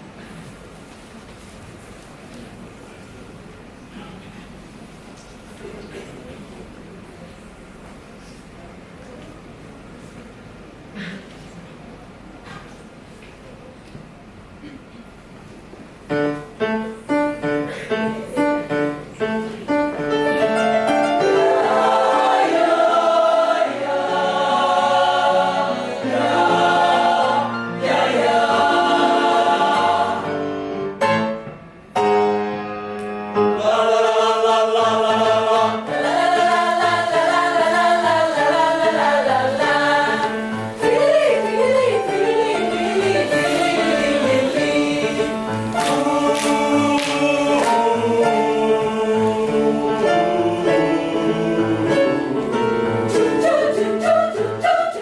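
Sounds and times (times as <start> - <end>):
choir singing: 20.1 - 31.0, 33.3 - 55.0.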